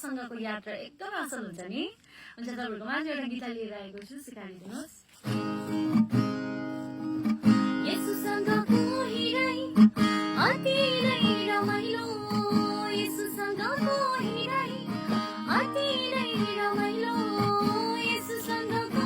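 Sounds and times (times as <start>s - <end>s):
acoustic guitar strumming: 5.2s - 19.0s
person singing worship song: 7.8s - 19.0s.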